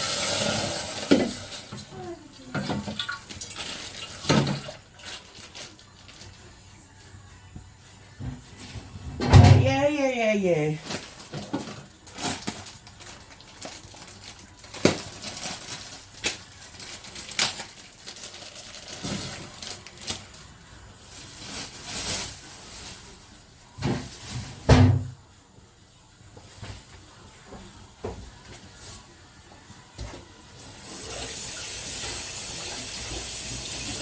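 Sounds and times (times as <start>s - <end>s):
kitchen items clattering: 0.0s - 6.3s, 10.7s - 20.4s.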